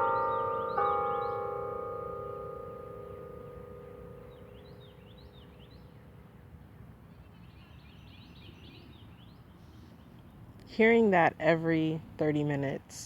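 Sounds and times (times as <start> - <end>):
bell tone: 0.0 - 4.6
outdoor background noise: 0.0 - 13.0.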